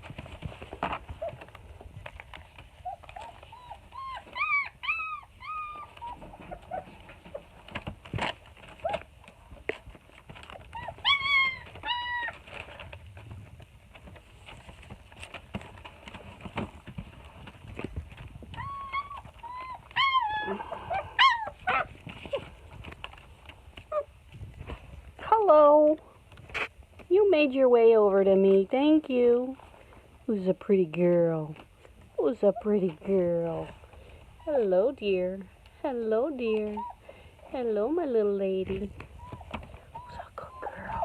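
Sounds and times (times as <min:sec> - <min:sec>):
puppies whining and yipping: 0:02.1 - 0:09.1, 0:10.2 - 0:12.9, 0:18.1 - 0:23.2, 0:36.3 - 0:37.2, 0:39.0 - 0:41.0.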